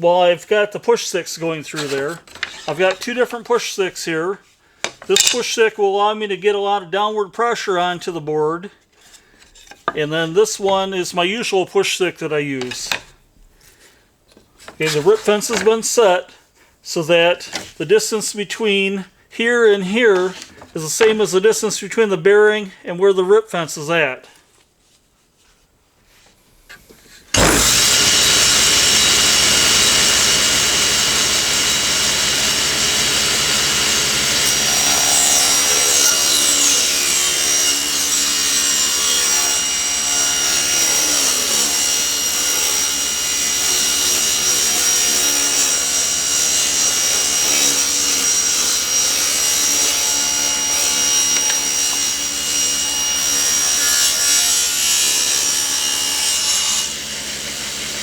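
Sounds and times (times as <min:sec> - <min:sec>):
table saw whining: 0:01.8 - 0:03.2, 0:05.1 - 0:05.4, 0:27.3 - 0:58.0.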